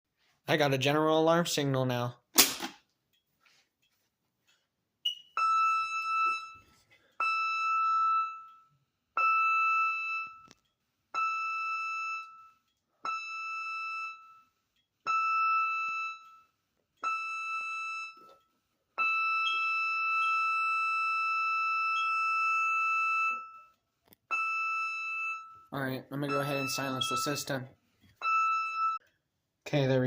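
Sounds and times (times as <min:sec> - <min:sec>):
electronic alarm blasts: 0:05.0 - 0:10.6, 0:11.2 - 0:18.4, 0:19.0 - 0:29.1.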